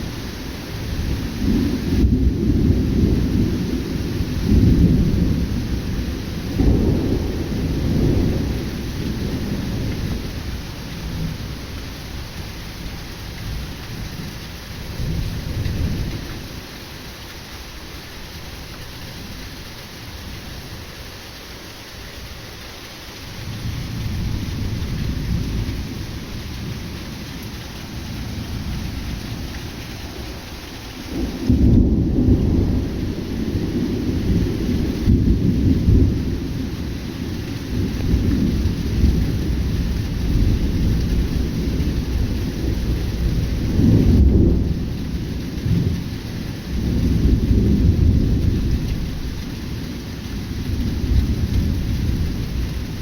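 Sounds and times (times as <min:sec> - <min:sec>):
heavy rain falling: 0:00.0 - 0:53.0
rolling thunder: 0:00.9 - 0:11.7, 0:23.3 - 0:53.0.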